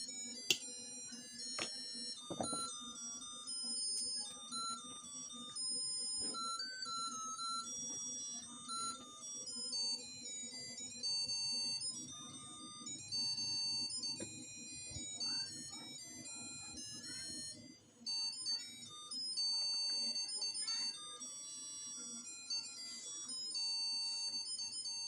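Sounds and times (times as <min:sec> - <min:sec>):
electronic jingle of beep tones: 0:01.6 - 0:02.7.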